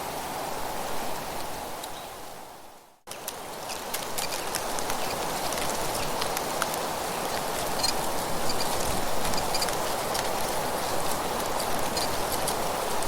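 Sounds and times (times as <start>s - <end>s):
scattered crackles: 3.1s - 13.0s.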